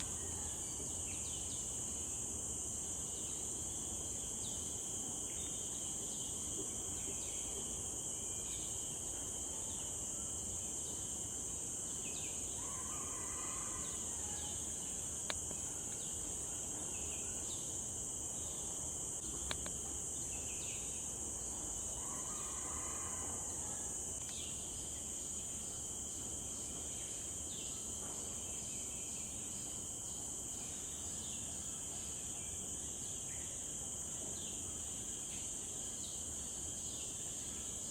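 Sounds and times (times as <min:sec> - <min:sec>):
high-pitched insect chorus: 0:00.0 - 0:37.9
sharp clicks: 0:19.4 - 0:19.8.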